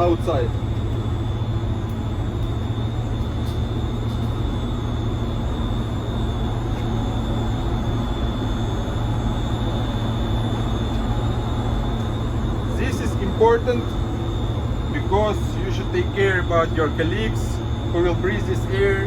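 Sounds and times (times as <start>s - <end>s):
high-pitched whine: 0.0s - 19.0s
low machinery hum: 0.0s - 19.0s.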